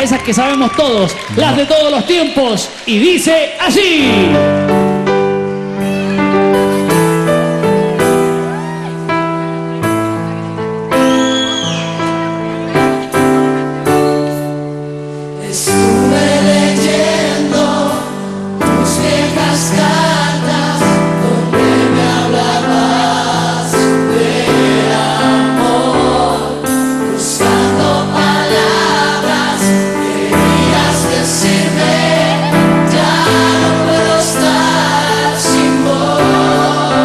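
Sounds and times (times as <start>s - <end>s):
instrumental backing: 3.7s - 37.0s
group singing in chorus: 15.4s - 37.0s.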